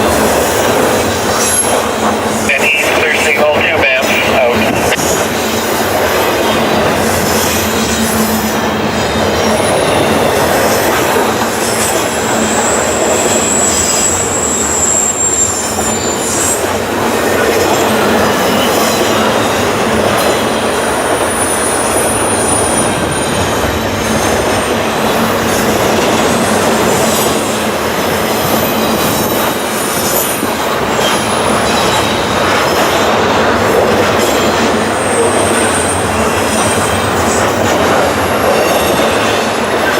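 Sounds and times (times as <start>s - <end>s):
train wheels rumbling on rail: 0.0s - 39.9s
high-pitched wheel squeals: 12.5s - 16.7s.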